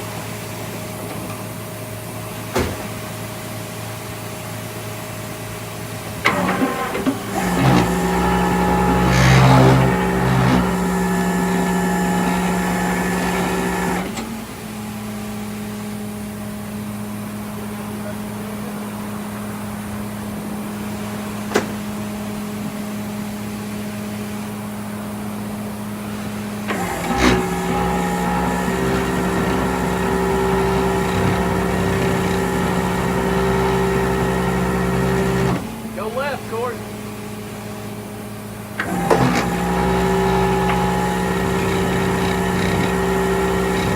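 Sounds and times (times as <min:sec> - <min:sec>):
vehicle engine running: 0:27.0 - 0:35.5.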